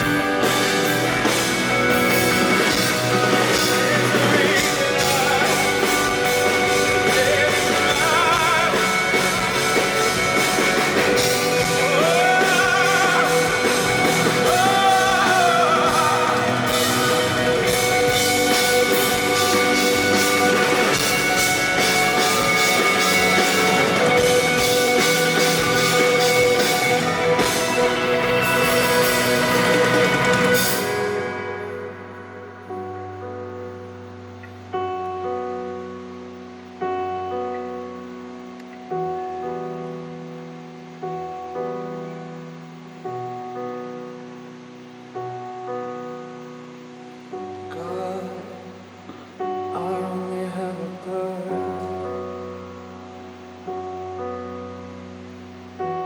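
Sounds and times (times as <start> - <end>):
person singing: 0.0 - 33.1, 47.5 - 52.5
guitar: 0.0 - 56.0
live rock band: 0.0 - 56.0.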